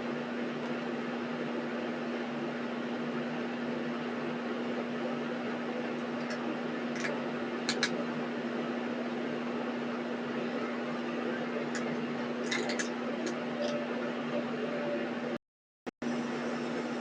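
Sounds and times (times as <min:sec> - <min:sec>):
steady mechanical hum: 0:00.0 - 0:15.4, 0:16.0 - 0:17.0.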